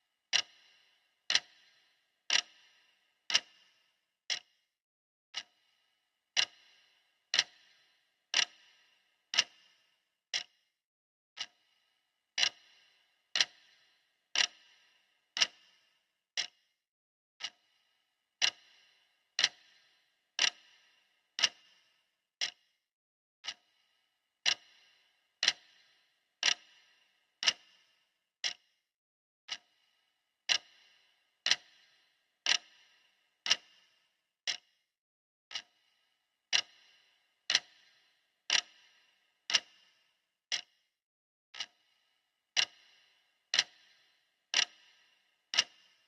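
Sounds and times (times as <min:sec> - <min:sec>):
clock ticking: 0:00.3 - 0:04.5, 0:05.3 - 0:05.7, 0:06.3 - 0:10.5, 0:11.4 - 0:11.7, 0:12.4 - 0:16.6, 0:17.4 - 0:17.8, 0:18.4 - 0:22.6, 0:23.4 - 0:23.8, 0:24.4 - 0:28.6, 0:29.5 - 0:29.9, 0:30.5 - 0:33.9, 0:34.5 - 0:34.7, 0:35.5 - 0:35.9, 0:36.5 - 0:40.7, 0:41.6 - 0:46.0.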